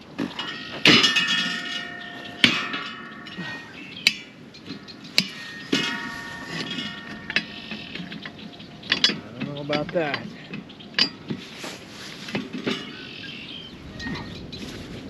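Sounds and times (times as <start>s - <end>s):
hammer striking steel: 0.4s - 4.3s.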